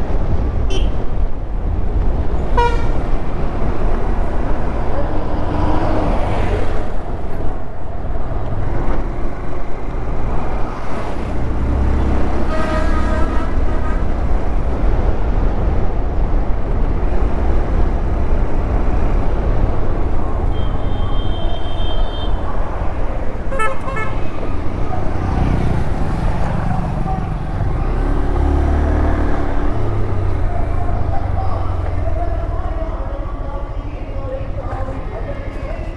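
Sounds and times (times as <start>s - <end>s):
wind and road rumble: 0.0s - 35.9s
vehicle horns honking: 0.7s - 1.1s, 2.4s - 3.1s, 12.2s - 14.6s, 20.4s - 22.6s, 23.4s - 24.8s.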